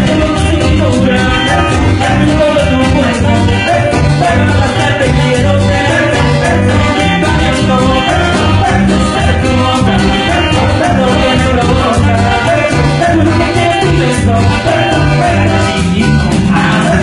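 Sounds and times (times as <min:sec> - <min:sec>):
tropical band playing cumbia: 0:00.0 - 0:17.0.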